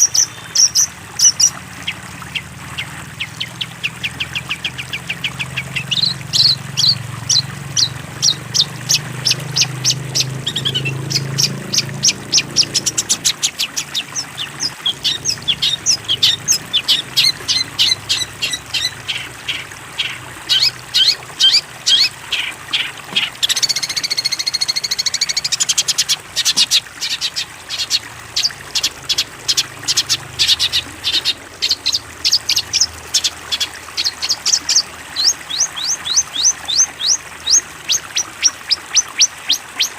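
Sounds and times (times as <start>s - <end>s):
songbird chirping: 3.2s - 25.7s.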